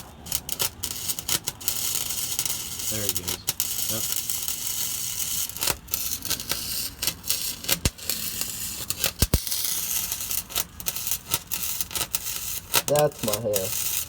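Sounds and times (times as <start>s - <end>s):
welder arc crackling and hissing: 0.0s - 14.0s
sharp clicks: 9.2s - 9.4s.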